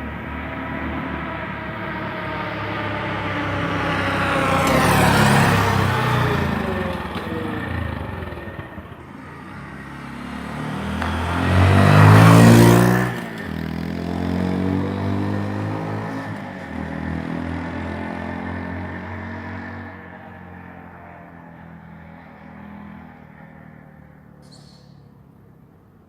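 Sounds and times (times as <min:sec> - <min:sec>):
motorcycle engine revving: 0:00.9 - 0:21.1.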